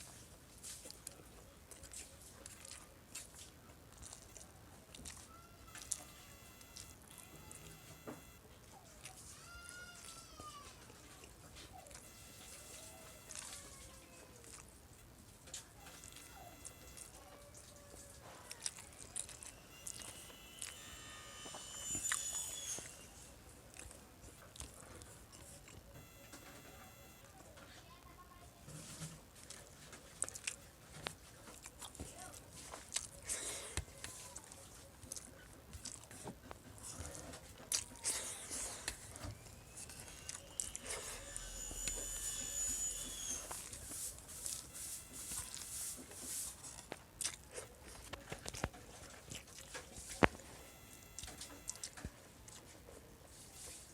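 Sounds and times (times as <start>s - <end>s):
person chewing food: 0.0s - 23.0s, 23.6s - 26.2s, 29.3s - 52.8s
faint high thin tones: 5.2s - 8.5s, 11.6s - 23.4s, 25.9s - 27.6s, 38.1s - 46.9s, 50.0s - 52.1s.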